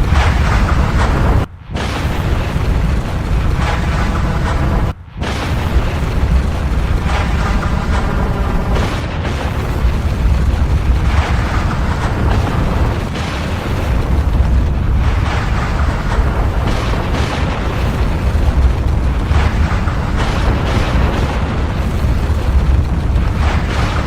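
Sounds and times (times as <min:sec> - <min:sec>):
deep volcanic rumble: 0:00.0 - 0:24.0
short eruption blasts: 0:00.0 - 0:24.0.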